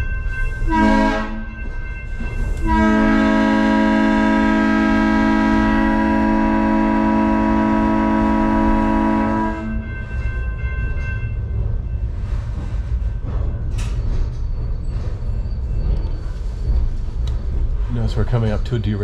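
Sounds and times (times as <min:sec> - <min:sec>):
train rumbling along track: 0:00.0 - 0:19.0
train horn chord: 0:00.7 - 0:01.6, 0:02.6 - 0:09.9.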